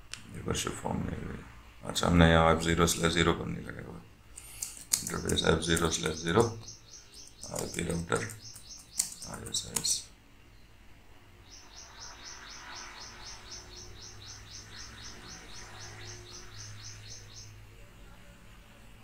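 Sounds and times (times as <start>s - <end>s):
faint low hum: 0.0s - 19.0s
bird chirping rapidly: 4.4s - 10.1s, 11.4s - 17.6s.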